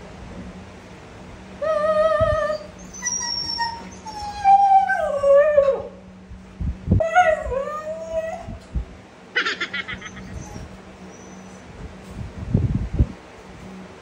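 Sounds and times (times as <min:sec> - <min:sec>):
dogs whining: 0:01.6 - 0:06.0, 0:07.0 - 0:08.6, 0:09.4 - 0:11.8.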